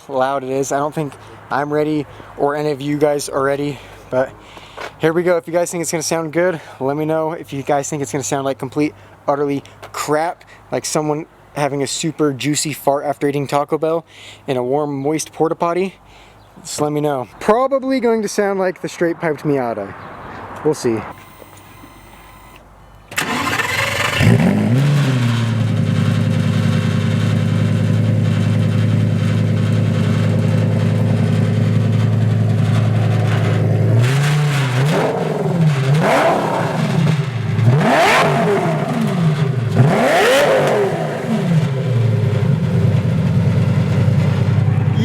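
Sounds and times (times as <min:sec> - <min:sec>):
sports car engine revving: 0:23.2 - 0:45.0.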